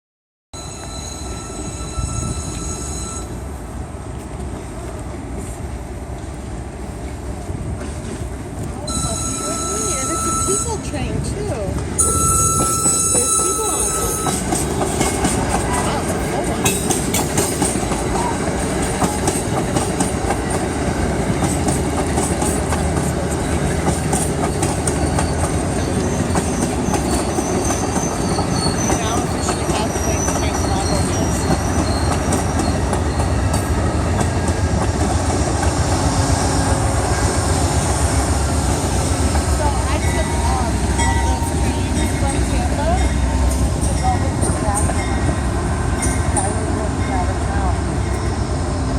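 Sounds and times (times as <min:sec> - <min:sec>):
high wheel squeal: 0:00.6 - 0:03.4, 0:08.9 - 0:10.9, 0:12.0 - 0:14.8, 0:24.5 - 0:34.2
train rumbling on rails: 0:00.6 - 0:48.9.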